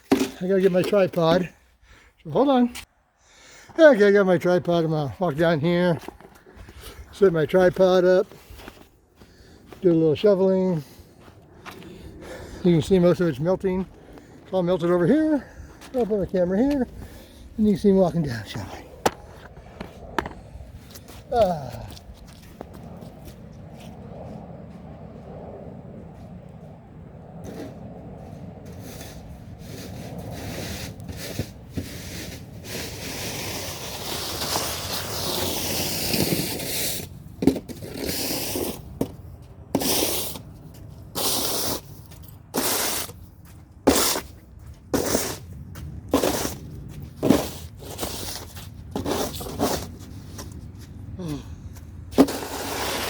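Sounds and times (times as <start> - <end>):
shovel blade knocking pavement: 19.0 - 20.4
snow shovel scraping slush: 28.8 - 37.1, 37.7 - 38.8, 39.8 - 40.4, 41.2 - 41.9, 42.6 - 43.1, 43.9 - 44.3, 45.0 - 45.4, 46.2 - 46.6, 47.2 - 50.0, 52.2 - 53.0.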